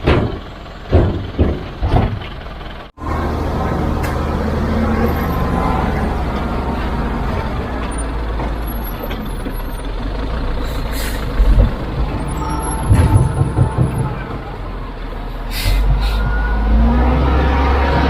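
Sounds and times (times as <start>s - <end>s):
diesel construction machine running: 0.0s - 18.0s
heavy low thumps: 11.4s - 15.2s.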